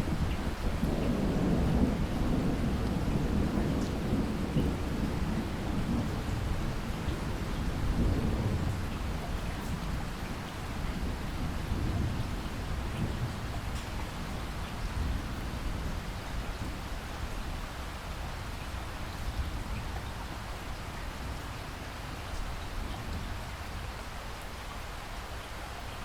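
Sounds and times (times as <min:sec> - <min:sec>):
thunder rumbling: 0:00.0 - 0:16.7
steady rainfall: 0:00.0 - 0:26.0.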